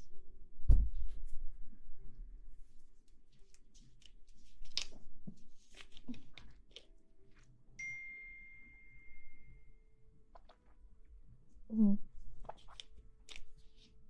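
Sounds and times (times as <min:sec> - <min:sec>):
close rustling and scratching: 0:02.5 - 0:07.5
steady ringing tone: 0:07.8 - 0:10.0.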